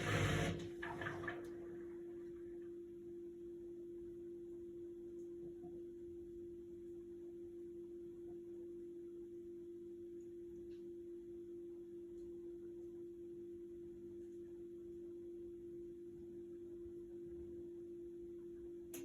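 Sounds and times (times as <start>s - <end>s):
washing machine humming: 0.0s - 3.0s.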